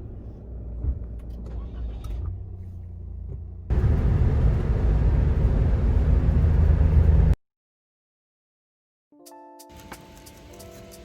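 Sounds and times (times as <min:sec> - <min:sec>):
car road and engine noise: 0:00.0 - 0:07.4.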